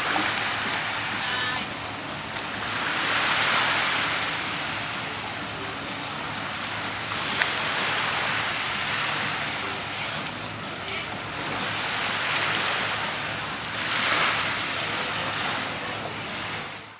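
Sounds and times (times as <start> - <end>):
sea waves washing: 0.0 - 16.9.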